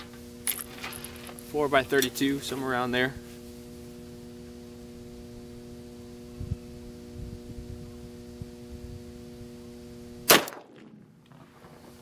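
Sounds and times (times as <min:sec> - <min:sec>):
electrical hum: 0:00.0 - 0:12.0
gunshot: 0:10.3 - 0:11.0.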